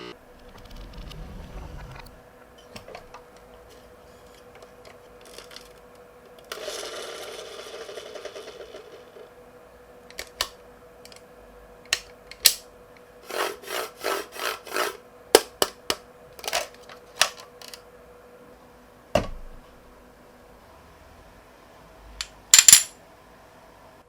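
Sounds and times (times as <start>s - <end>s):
rattling pulses: 0.2s - 2.6s.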